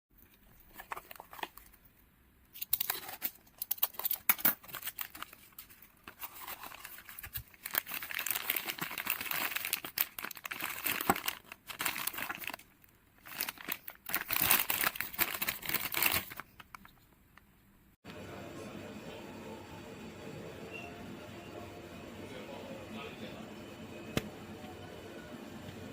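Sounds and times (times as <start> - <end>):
packaging crinkling and tearing: 0.2 - 1.8, 2.6 - 17.0.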